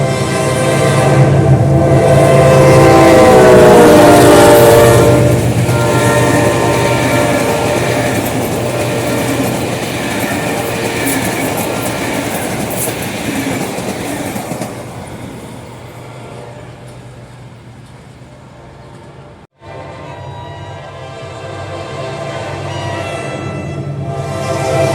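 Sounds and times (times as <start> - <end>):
diesel locomotive engine humming: 0.0 - 24.9
train wheels clicking over rails: 4.2 - 19.2.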